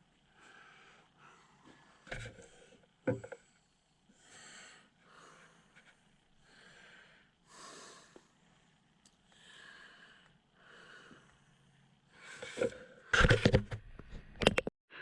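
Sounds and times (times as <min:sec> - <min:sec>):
man breathing heavily: 0:00.3 - 0:03.0, 0:04.1 - 0:13.1.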